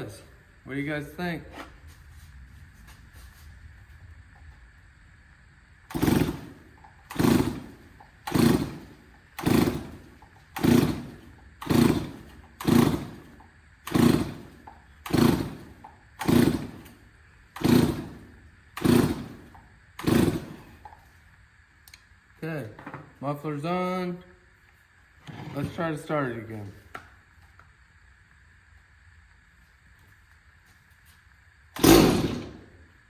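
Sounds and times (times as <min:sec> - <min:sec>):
engine turning over: 0:05.8 - 0:21.0, 0:31.7 - 0:32.9
chainsaw recoil starter pulls: 0:05.9 - 0:21.0, 0:31.8 - 0:32.7.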